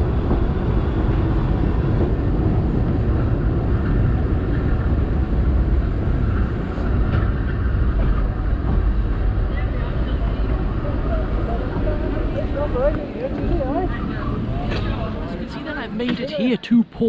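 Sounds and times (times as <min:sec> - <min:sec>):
train rumbling on track: 0:00.0 - 0:16.5.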